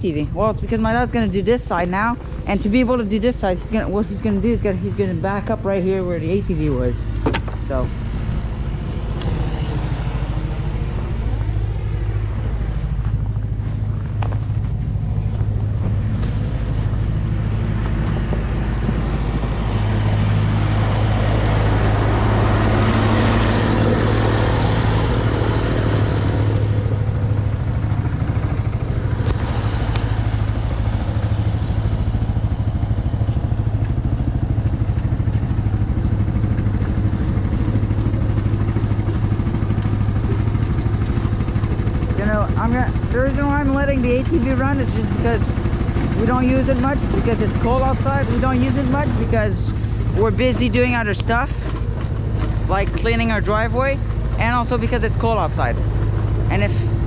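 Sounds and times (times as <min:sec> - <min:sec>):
atv engine idling: 0:00.0 - 0:57.0
loud rushing noise: 0:18.2 - 0:26.7.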